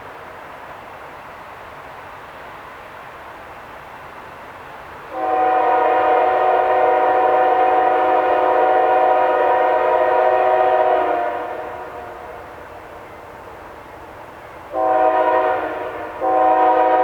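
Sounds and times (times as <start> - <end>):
low rumble of train: 0.0 - 17.0
locomotive air horn blast: 5.1 - 12.3, 14.7 - 17.0.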